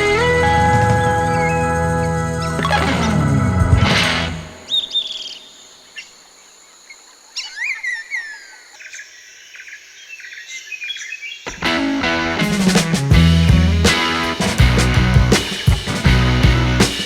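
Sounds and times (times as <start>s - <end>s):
music: 0.0s - 4.6s, 11.5s - 17.0s
birds calling: 0.0s - 17.0s
quick bird chirps: 2.4s - 6.1s.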